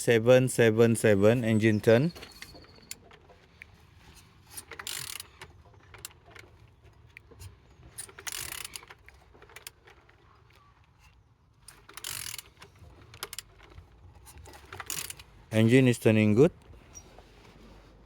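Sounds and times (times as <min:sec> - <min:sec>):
engine turned over by hand: 0:01.7 - 0:10.5, 0:11.6 - 0:15.5
metallic clicks: 0:07.3 - 0:09.8.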